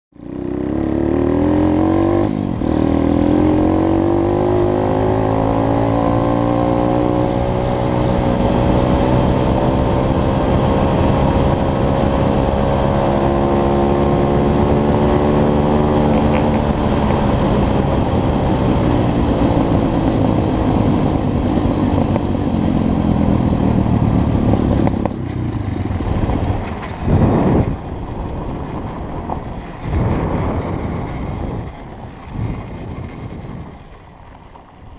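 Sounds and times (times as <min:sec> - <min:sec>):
pit bike engine revving: 0:00.2 - 0:27.8.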